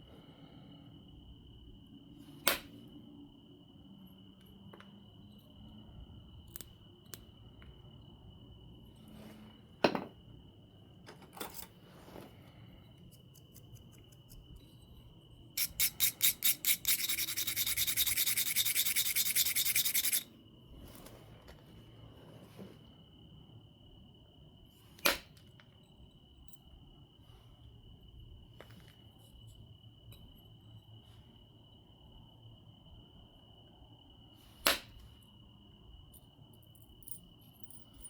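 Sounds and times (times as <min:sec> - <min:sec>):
faint cricket tone: 0:00.0 - 0:38.0
fast scraping on stone: 0:15.6 - 0:20.2.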